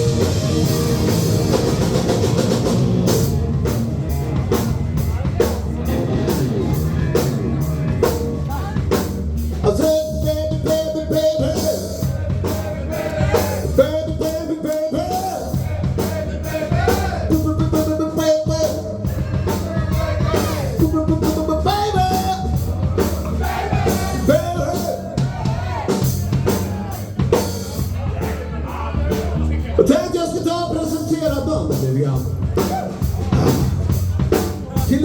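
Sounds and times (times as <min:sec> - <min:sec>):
drum kit beat: 0:00.0 - 0:35.0
live rock band playing: 0:00.0 - 0:35.0.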